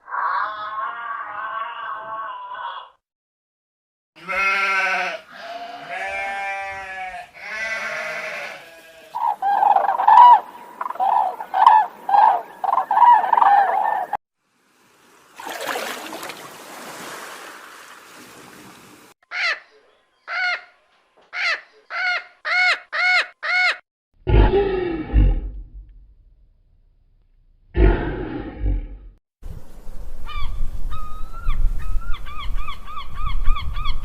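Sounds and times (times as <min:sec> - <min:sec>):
livestock bleating: 0:00.4 - 0:02.9, 0:04.2 - 0:09.2.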